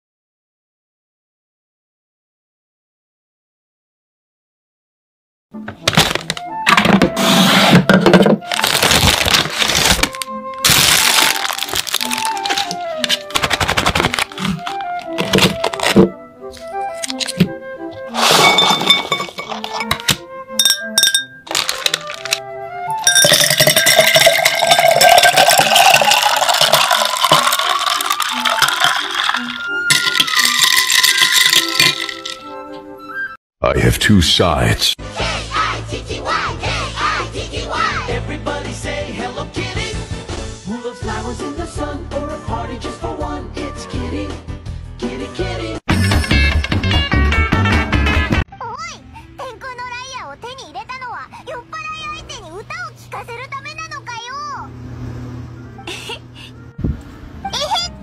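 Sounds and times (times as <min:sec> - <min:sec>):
music: 0:05.5 - 0:54.0, 0:55.3 - 0:58.0
paper bag crinkling: 0:05.8 - 0:06.5, 0:08.4 - 0:17.4, 0:21.5 - 0:22.4, 0:25.8 - 0:32.4
ice clinking against glass: 0:18.2 - 0:22.4, 0:23.0 - 0:32.5
liquid pouring over ice: 0:23.1 - 0:32.4.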